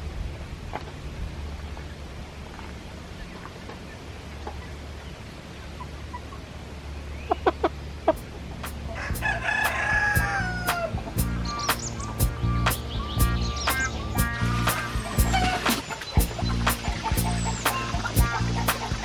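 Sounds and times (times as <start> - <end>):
hen clucking: 7.3 - 19.0
music with ticking beat: 8.6 - 19.0
rooster crowing: 8.9 - 11.0.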